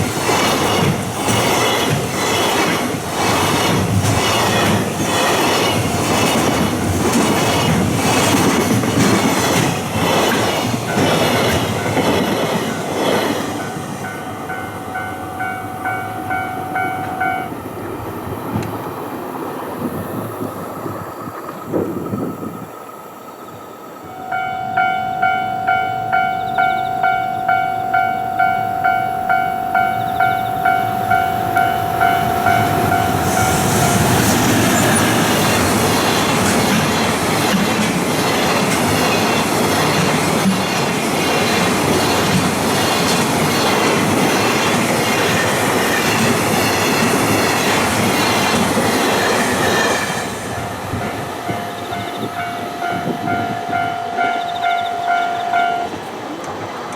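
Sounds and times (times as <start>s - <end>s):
train wheels clattering: 0.0s - 19.1s, 24.0s - 56.9s
level-crossing bell ringing: 10.9s - 17.6s, 24.0s - 35.0s, 50.6s - 56.1s.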